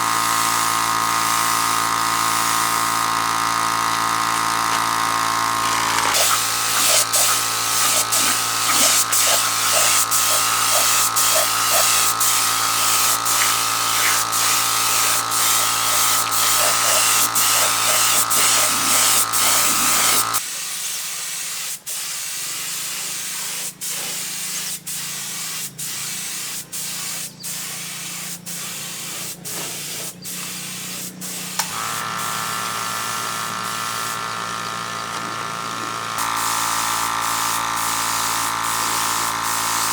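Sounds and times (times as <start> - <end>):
spraying hiss: 6.1 - 34.2.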